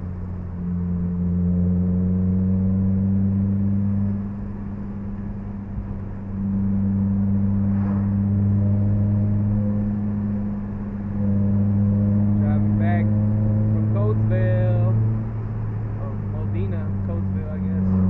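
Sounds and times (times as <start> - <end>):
car engine drone in cabin: 0.0 - 18.0.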